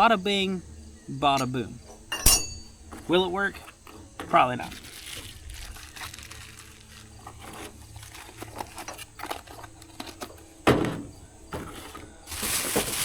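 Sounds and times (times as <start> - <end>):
sharp clunk: 1.4 - 2.8.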